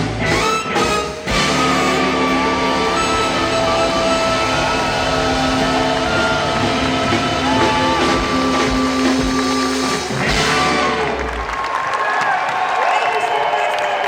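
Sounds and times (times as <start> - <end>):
blues band chord: 0.0 - 11.5
slide guitar notes: 0.8 - 11.3.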